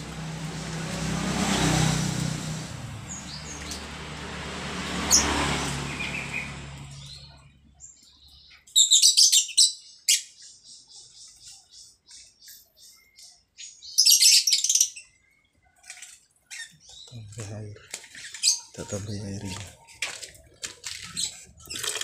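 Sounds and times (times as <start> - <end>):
water splashing: 0.0 - 7.2, 15.7 - 22.0
starling chirping: 2.9 - 4.2, 4.9 - 15.4, 16.5 - 20.1, 21.0 - 22.0.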